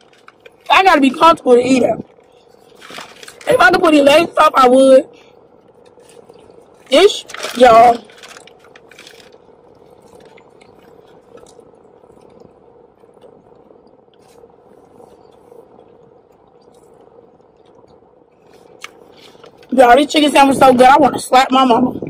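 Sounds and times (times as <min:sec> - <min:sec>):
low hum inside a car: 0:00.0 - 0:22.0
close-mouthed chewing: 0:08.2 - 0:19.6.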